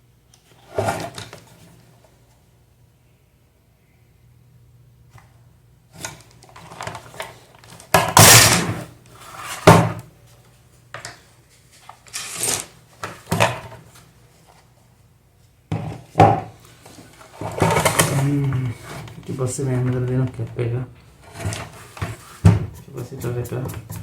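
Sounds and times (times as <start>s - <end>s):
fan parts knocking and rattling: 21.3s - 24.0s.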